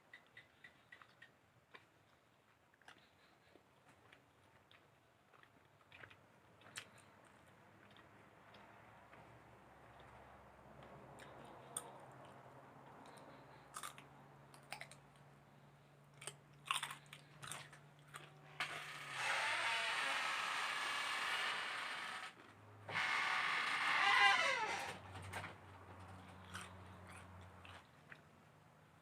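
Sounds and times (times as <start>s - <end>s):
close-up chewing and crunching: 0.0s - 18.6s, 26.0s - 29.0s.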